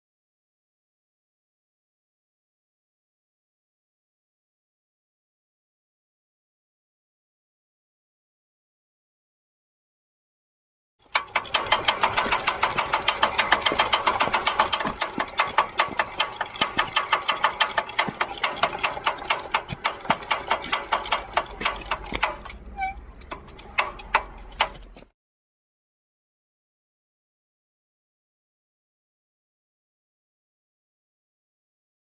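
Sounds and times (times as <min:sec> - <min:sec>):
moped wheel clicking: 0:11.1 - 0:25.1.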